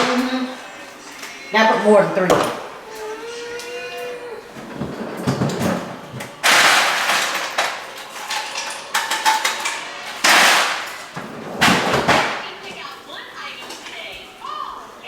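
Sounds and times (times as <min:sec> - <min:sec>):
ice cubes clattering into cup: 0:06.2 - 0:11.1.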